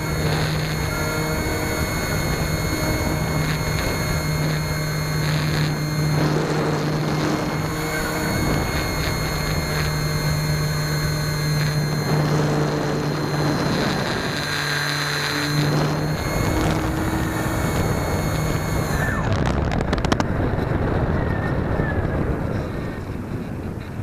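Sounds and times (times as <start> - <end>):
electric motor whine: 0.0 - 20.2
rushing wind noise: 15.7 - 24.0.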